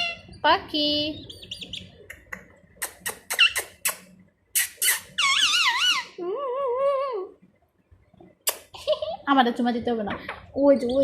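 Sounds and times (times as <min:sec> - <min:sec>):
parrot calling: 0:00.0 - 0:00.4, 0:02.8 - 0:06.2.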